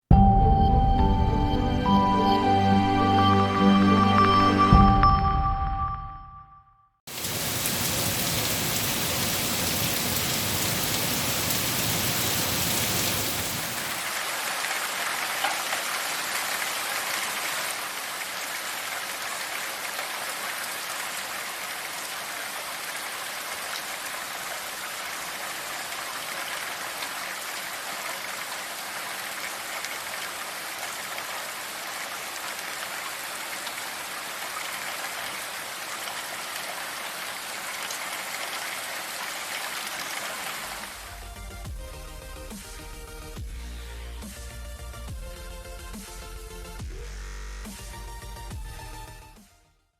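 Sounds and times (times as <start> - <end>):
rain falling: 7.1 - 41.4.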